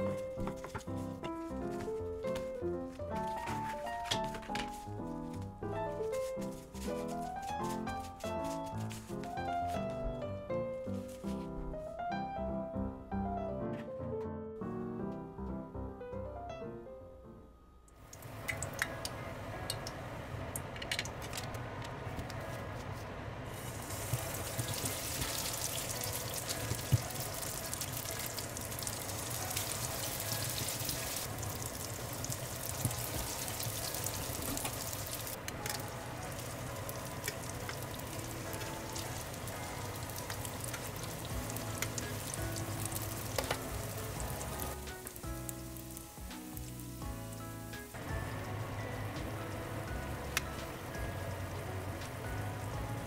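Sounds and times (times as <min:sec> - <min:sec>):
bread rolls deep-frying in oil: 0:18.0 - 0:21.6, 0:23.5 - 0:53.0.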